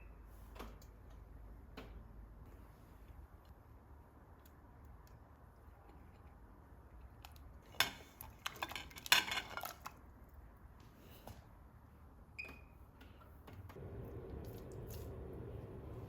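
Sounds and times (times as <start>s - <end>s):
dishes and utensils clattering: 7.8s - 9.9s.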